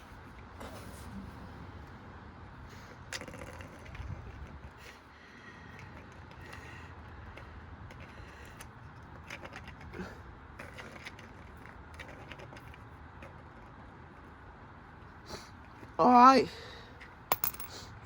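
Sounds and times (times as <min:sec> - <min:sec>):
coin rattling in drum: 0:17.3 - 0:17.8.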